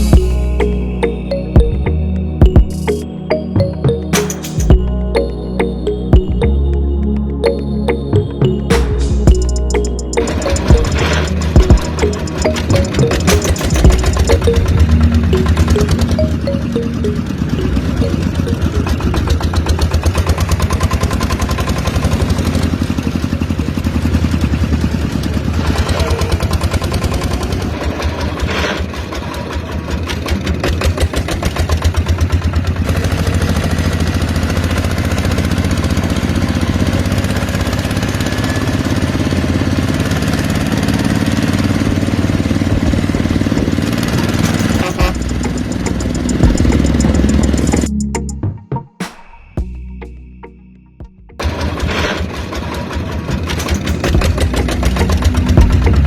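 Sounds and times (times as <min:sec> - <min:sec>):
small engine running: 0:17.0 - 0:47.9, 0:51.4 - 0:56.0.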